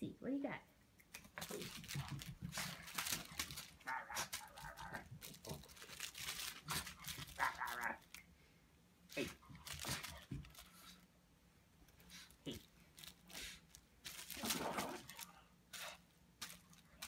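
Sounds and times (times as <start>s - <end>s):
scuffling and crinkling: 1.3s - 8.2s, 9.1s - 11.1s, 11.9s - 17.0s.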